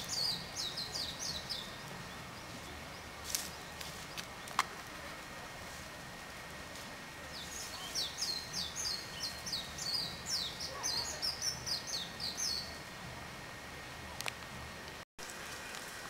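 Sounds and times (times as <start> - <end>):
songbird chirping: 0.0 - 5.1, 7.2 - 13.1.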